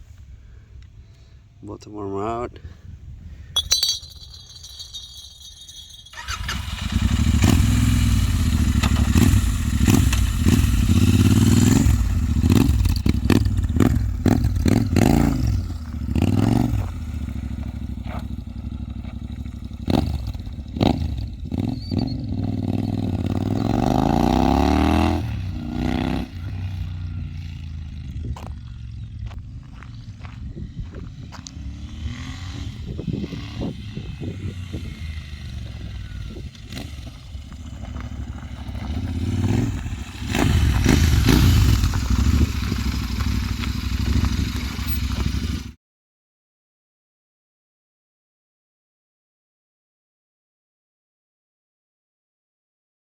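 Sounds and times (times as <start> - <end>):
motorcycle engine revving: 6.4 - 29.1, 31.4 - 45.8.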